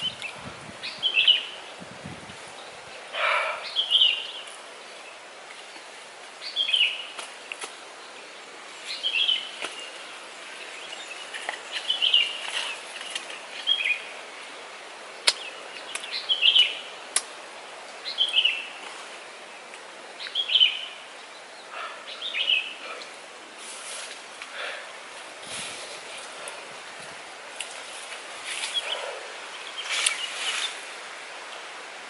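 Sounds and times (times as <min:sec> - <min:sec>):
bird chirping: 0:02.6 - 0:05.2, 0:06.4 - 0:14.1, 0:15.2 - 0:16.9, 0:20.2 - 0:23.2.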